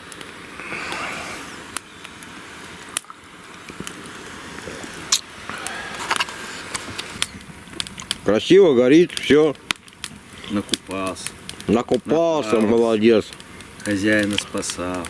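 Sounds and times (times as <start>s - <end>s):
low noisy hiss: 0.0s - 15.0s
wood fire crackling: 0.0s - 15.0s.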